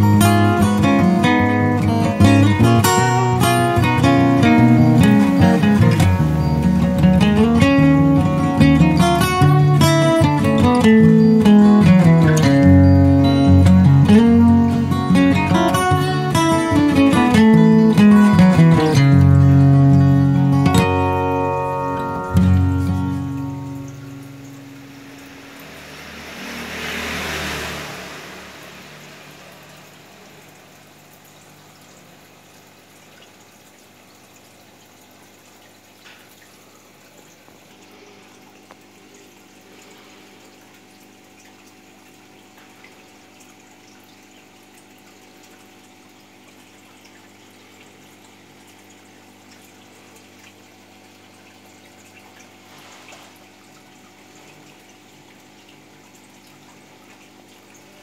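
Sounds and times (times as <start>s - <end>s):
aquarium pump moving water: 0.0s - 58.0s
pump low hum: 0.0s - 58.0s
loud rush of noise: 24.9s - 30.5s.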